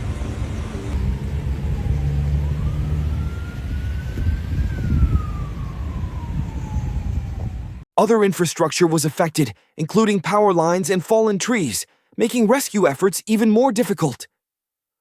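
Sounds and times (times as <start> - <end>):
emergency vehicle siren wailing: 0.0 - 7.9.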